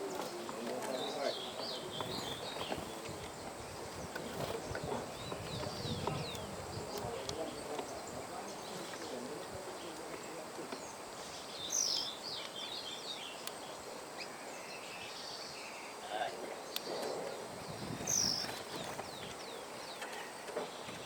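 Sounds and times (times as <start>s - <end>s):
outdoor background hiss: 0.0s - 21.0s
small birds chirping: 0.0s - 21.0s.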